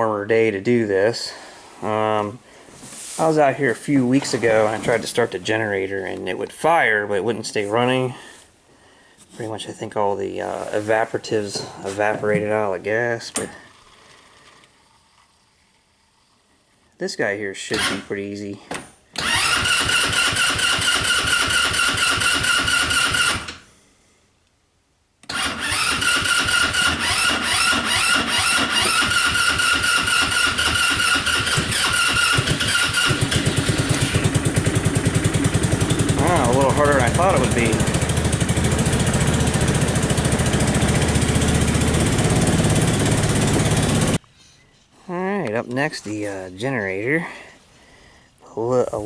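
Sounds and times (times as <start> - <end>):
engine starter cranking: 17.7 - 18.1, 19.2 - 23.6, 25.2 - 44.2.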